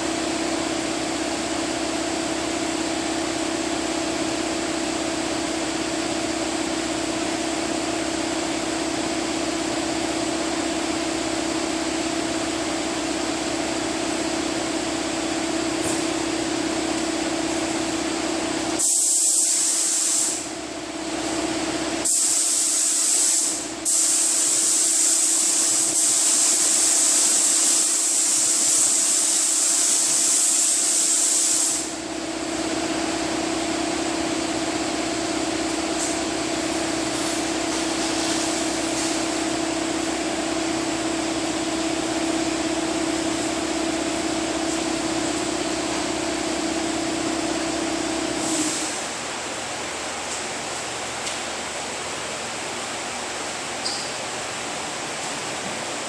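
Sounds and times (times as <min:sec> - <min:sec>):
steady hum: 0:00.0 - 0:56.0
spray gun hissing: 0:18.8 - 0:20.5, 0:22.0 - 0:32.0.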